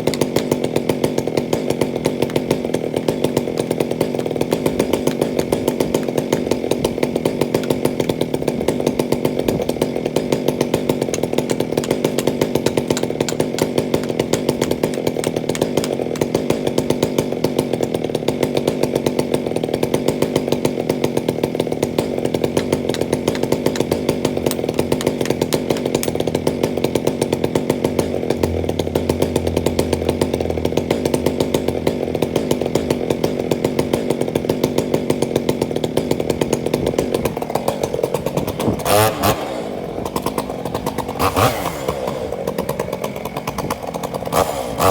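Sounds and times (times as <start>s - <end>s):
chainsaw running at high speed: 0.0s - 44.9s.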